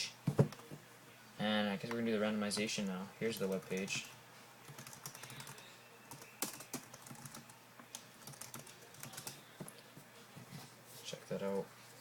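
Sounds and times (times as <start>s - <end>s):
computer keyboard typing: 3.3s - 4.1s, 4.7s - 9.4s.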